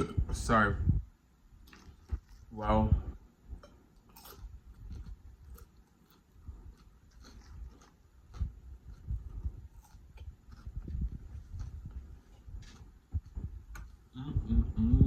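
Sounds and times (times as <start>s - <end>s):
close chewing of food: 3.9s - 14.4s.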